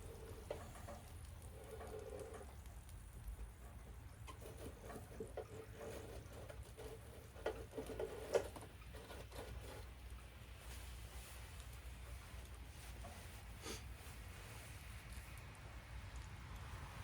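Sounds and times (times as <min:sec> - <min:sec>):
rain pattering: 0:00.0 - 0:17.0
wood fire crackling: 0:00.0 - 0:17.0.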